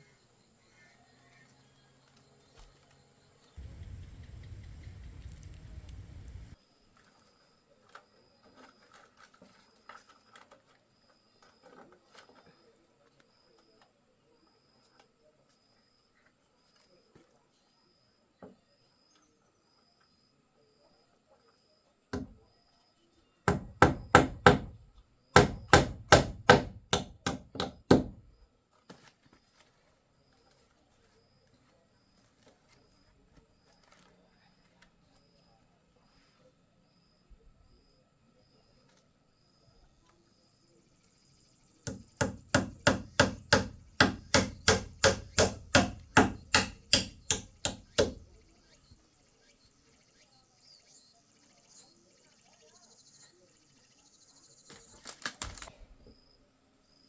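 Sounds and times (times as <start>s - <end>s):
knife chopping on a board: 25.4s - 28.2s, 41.9s - 48.4s.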